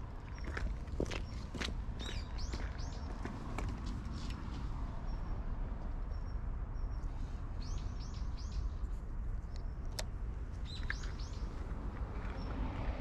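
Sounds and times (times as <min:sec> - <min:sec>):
small bird chirping: 0:10.6 - 0:11.6.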